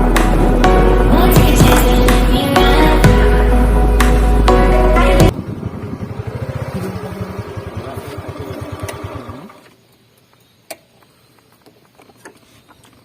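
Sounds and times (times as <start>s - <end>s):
fast pulsing background music: 0.0s - 5.3s.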